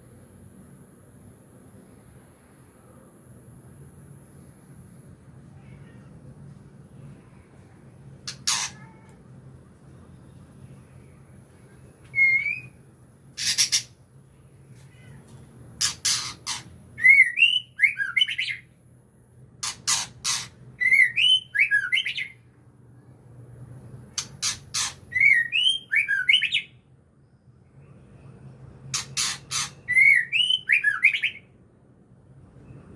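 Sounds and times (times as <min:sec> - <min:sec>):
songbird calling: 0:08.3 - 0:08.9, 0:12.1 - 0:12.8, 0:13.4 - 0:14.0, 0:15.8 - 0:18.7, 0:28.9 - 0:31.4.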